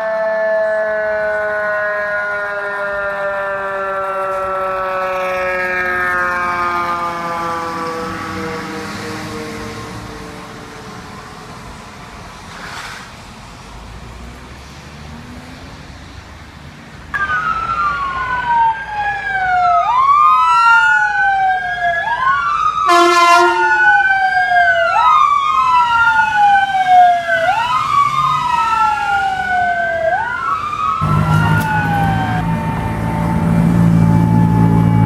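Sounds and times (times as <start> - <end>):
fire truck sirens wailing: 0.0 - 12.4, 16.6 - 35.0
horn blast: 22.9 - 23.9, 31.0 - 35.0
low engine rumble: 31.0 - 35.0.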